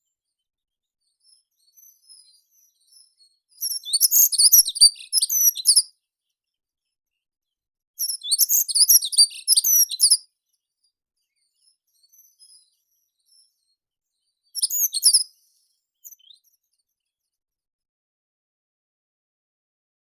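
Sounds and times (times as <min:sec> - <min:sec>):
faint bird chirps: 0:00.0 - 0:17.4
songbird singing: 0:01.7 - 0:05.8, 0:08.0 - 0:10.2, 0:14.6 - 0:15.3.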